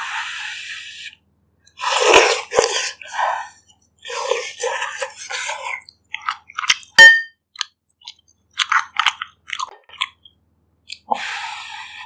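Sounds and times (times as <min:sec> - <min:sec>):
chewing and wet mouth clicks: 0:05.7 - 0:11.2.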